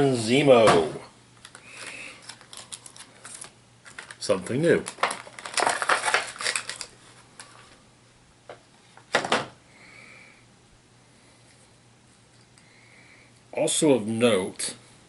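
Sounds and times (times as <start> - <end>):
plastic figures clicking and clattering: 1.4 - 7.6.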